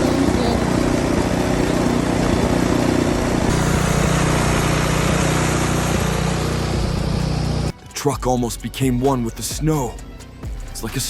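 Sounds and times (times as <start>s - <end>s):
vehicle engine running: 0.0s - 7.8s.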